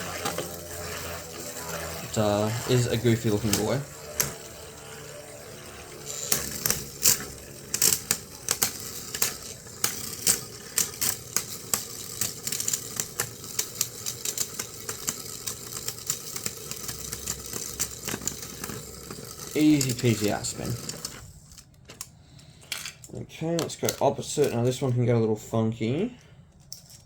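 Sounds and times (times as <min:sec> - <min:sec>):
spinning tops whirring: 0:00.0 - 0:21.6
tops clicking and clattering: 0:00.0 - 0:24.8.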